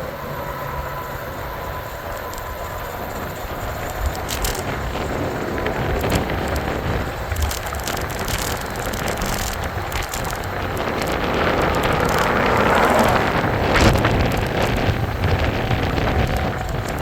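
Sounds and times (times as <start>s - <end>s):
wind buffeting microphone: 1.3s - 17.0s
small clicks and rattles: 2.1s - 13.2s
tyre and road rumble: 2.8s - 17.0s.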